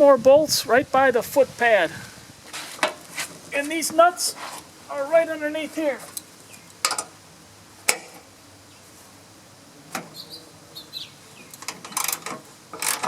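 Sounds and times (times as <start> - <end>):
wrench metal clicks: 11.5 - 13.0.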